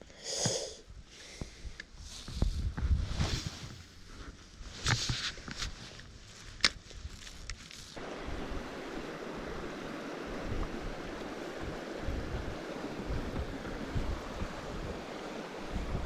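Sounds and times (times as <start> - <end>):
wind buffeting microphone: 8.0 - 16.0.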